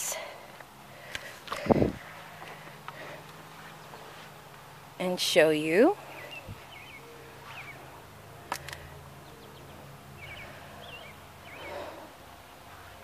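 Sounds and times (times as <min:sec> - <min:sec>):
small birds chirping: 0:02.1 - 0:08.0, 0:08.6 - 0:13.0.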